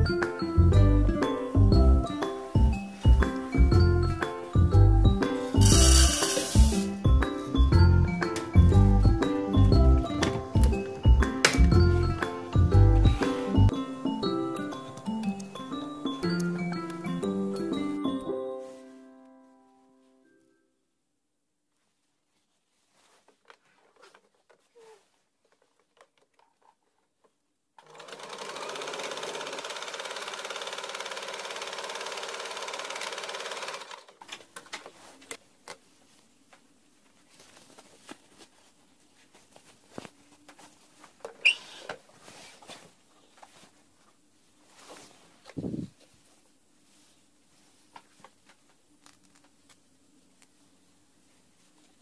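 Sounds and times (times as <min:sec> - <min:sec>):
faint clicks and handling sounds: 0:22.8 - 0:27.5, 0:47.8 - 0:50.6
sewing machine stitching: 0:27.8 - 0:34.2.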